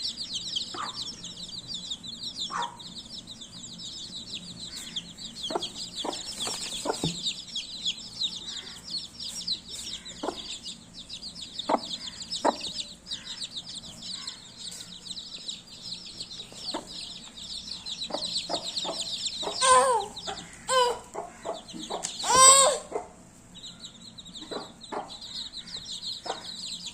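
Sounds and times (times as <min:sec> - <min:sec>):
chicks peeping: 0:00.0 - 0:26.9
loud long calls: 0:19.4 - 0:21.3, 0:22.2 - 0:23.0.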